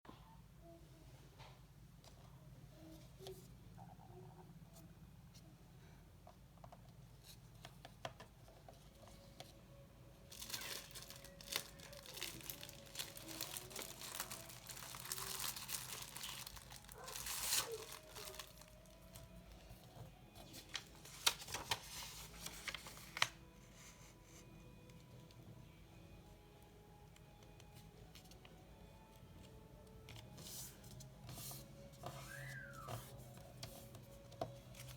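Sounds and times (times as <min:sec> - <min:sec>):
paper rustling and crinkling: 0:10.3 - 0:24.4, 0:30.0 - 0:34.9.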